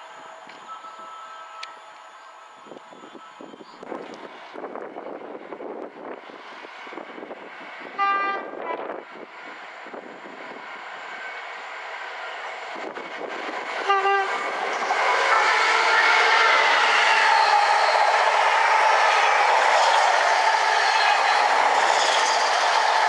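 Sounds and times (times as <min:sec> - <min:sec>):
train rumble: 0:00.0 - 0:23.0
train horn blasts: 0:08.0 - 0:08.8, 0:13.8 - 0:14.5, 0:15.2 - 0:17.4.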